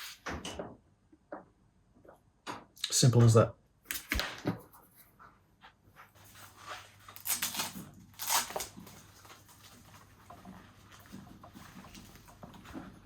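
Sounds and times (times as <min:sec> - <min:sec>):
rustling scraping sounds: 0:04.6 - 0:13.0.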